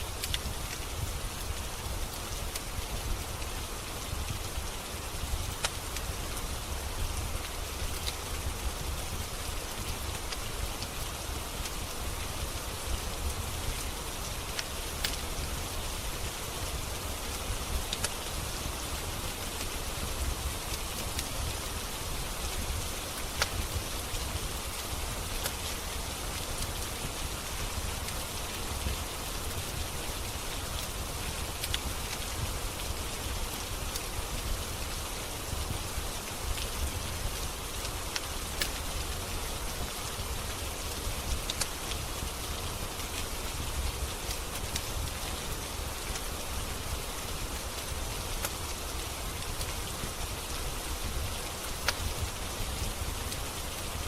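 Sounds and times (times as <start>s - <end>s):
steady rain: 0.0s - 54.0s
wood fire crackling: 0.0s - 54.0s.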